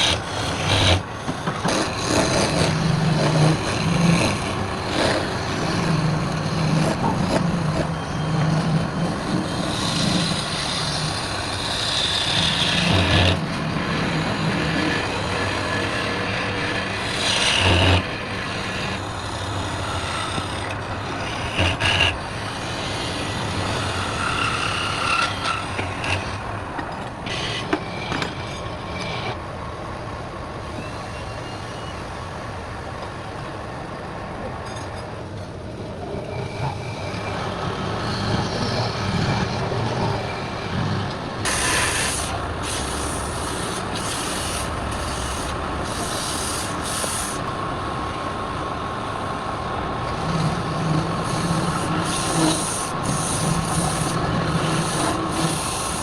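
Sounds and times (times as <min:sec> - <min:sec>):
tool scraping spinning wood: 0:00.0 - 0:26.4, 0:41.4 - 0:47.4, 0:50.1 - 0:56.0
wood lathe motor hum: 0:00.0 - 0:26.4, 0:41.4 - 0:47.5, 0:50.0 - 0:56.0.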